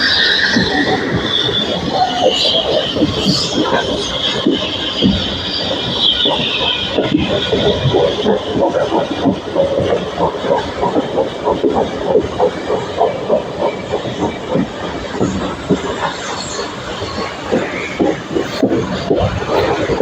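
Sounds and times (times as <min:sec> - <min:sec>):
steady train rumble: 0:00.0 - 0:20.0
train wheels clattering on track: 0:00.0 - 0:20.0.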